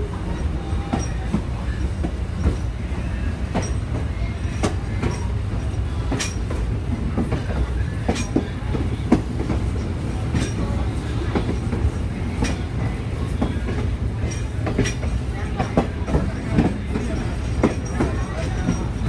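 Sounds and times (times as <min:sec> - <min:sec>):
train rumble: 0:00.0 - 0:19.0
wheels clanking over rail joints: 0:00.0 - 0:19.0.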